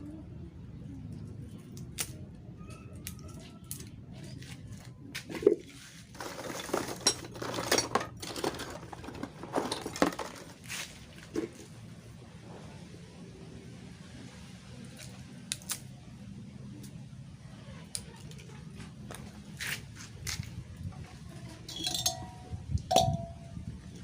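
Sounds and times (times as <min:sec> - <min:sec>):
metal clinking and scraping: 0:06.0 - 0:11.5, 0:21.4 - 0:23.6.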